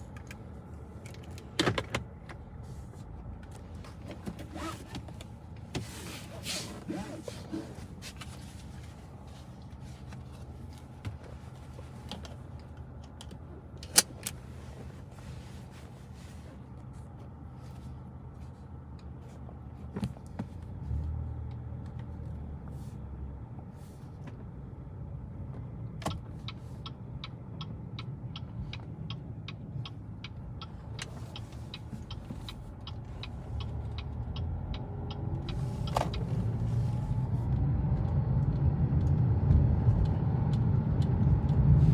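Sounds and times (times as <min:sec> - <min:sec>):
car engine hum: 0:00.0 - 0:41.9
turn signal ticking: 0:25.4 - 0:41.9.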